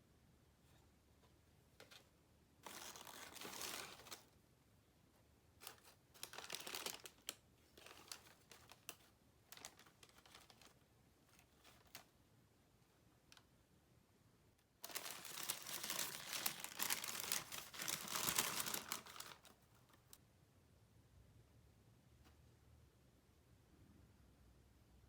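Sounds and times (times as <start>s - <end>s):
paper packaging crinkling: 2.6s - 4.3s, 5.6s - 12.1s, 14.8s - 20.2s.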